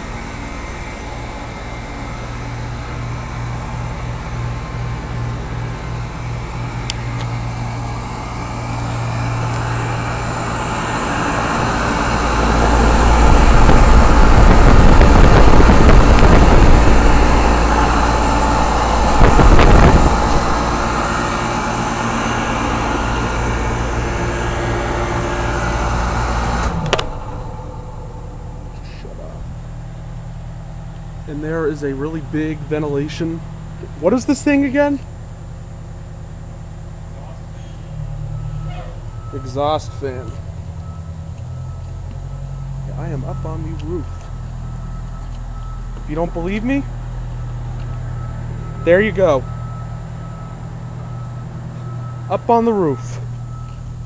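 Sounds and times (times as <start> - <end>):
condenser fans whooshing: 0.0 - 35.1
deep rumble: 0.0 - 52.3
compressors humming: 0.0 - 54.0.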